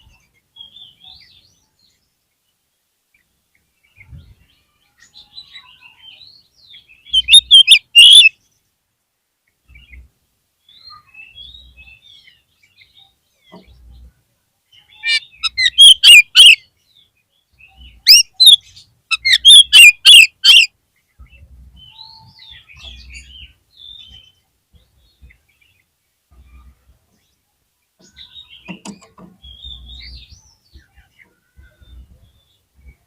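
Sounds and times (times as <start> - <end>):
bird calling sharp notes: 7.1 - 8.3, 15.0 - 16.6, 18.0 - 20.7
bird twittering warbles: 7.1 - 8.3, 15.0 - 16.6, 17.7 - 20.7.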